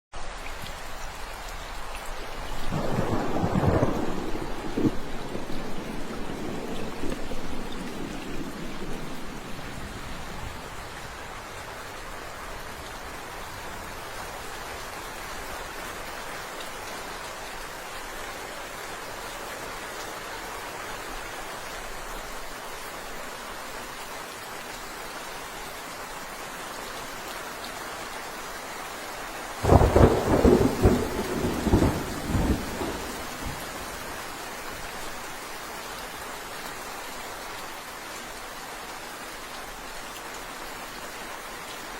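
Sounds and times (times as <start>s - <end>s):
steady rain falling: 0.1s - 41.9s
thunder clap rumbling: 2.7s - 10.7s, 29.6s - 34.1s.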